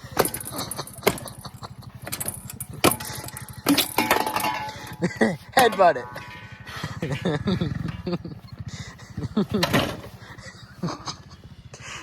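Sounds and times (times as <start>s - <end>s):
sharp knocks: 0.0s - 5.0s
small engine idling: 0.0s - 12.0s.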